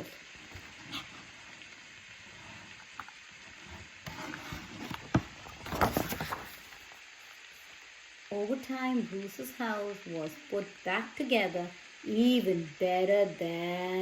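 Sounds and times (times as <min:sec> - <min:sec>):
paper page rustling: 0:03.6 - 0:07.0.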